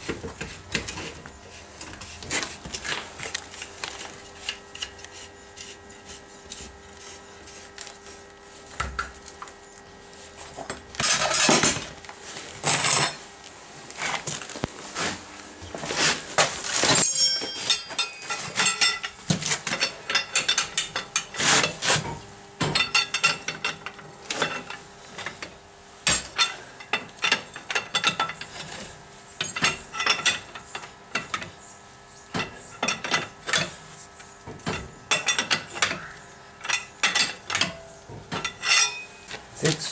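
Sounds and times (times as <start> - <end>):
metal tools clinking: 11.0 - 11.9, 16.8 - 25.5, 29.4 - 31.5, 34.7 - 39.9.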